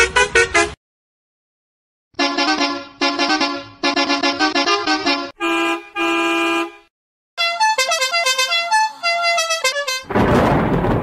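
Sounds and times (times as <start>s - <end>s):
cartoon horn steady note: 2.2s - 10.1s
musical horn tune: 2.2s - 10.1s
rain and thunder rush: 10.1s - 11.0s.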